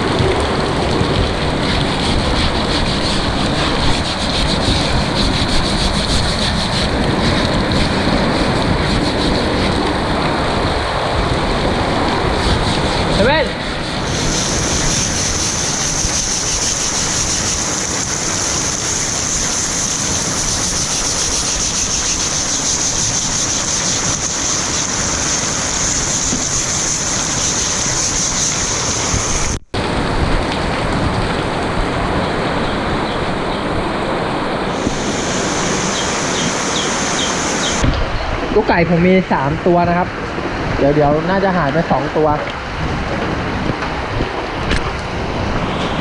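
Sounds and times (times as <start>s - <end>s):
heavy rain falling: 0.0s - 46.0s
high-pitched whine: 34.7s - 38.0s.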